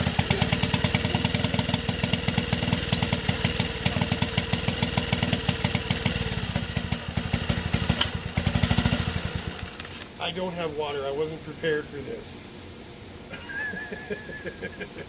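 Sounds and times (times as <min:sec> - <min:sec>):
outboard motor puttering: 0:00.0 - 0:10.1.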